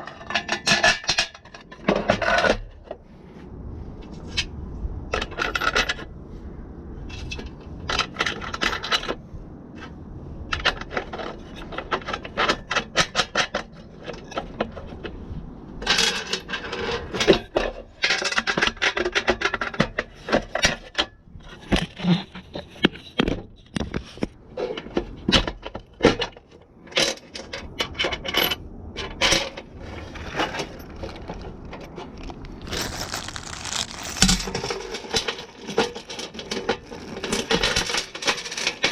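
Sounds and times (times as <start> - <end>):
metal tools clinking and scraping: 32.5 - 38.9.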